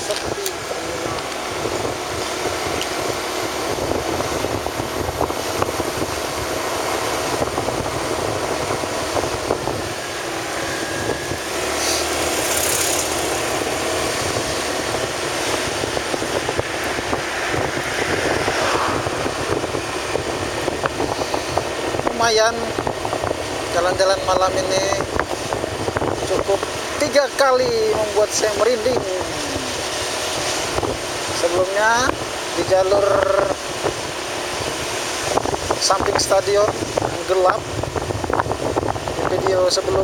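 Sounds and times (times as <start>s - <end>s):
motorcycle running: 0.0s - 40.0s
short hiss: 11.8s - 12.1s.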